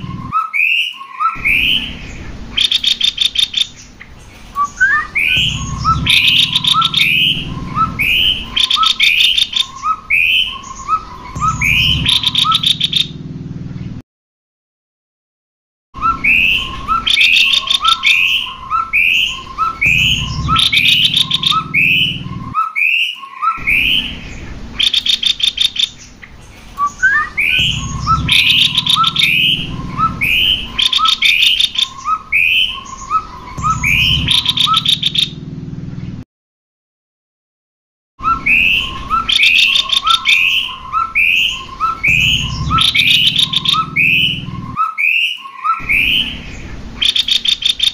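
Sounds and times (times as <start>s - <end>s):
songbird singing: 0.0s - 14.0s, 16.0s - 36.2s, 38.2s - 47.9s
bird rattling trills: 1.4s - 13.1s, 16.1s - 22.5s, 23.6s - 35.3s, 38.3s - 44.8s.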